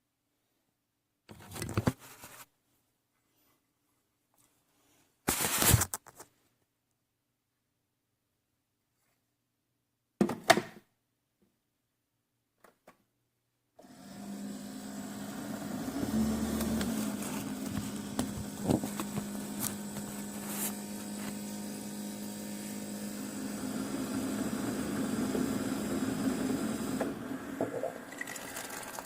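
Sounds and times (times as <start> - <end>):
coffee maker pump humming: 13.8 - 29.0.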